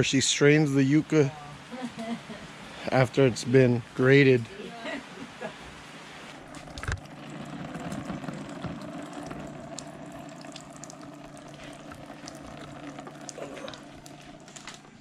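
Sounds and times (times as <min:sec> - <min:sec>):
liquid splashing into bucket: 0:06.4 - 0:15.0.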